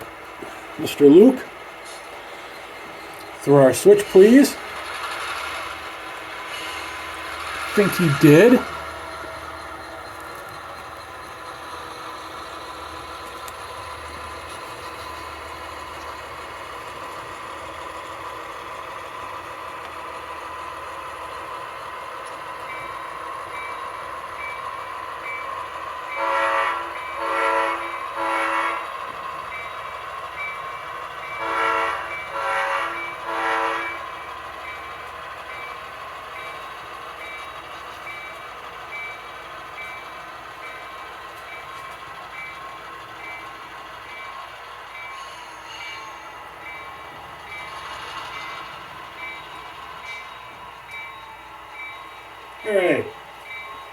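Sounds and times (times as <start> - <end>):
short horn blasts: 26.2 - 28.8, 31.4 - 34.0.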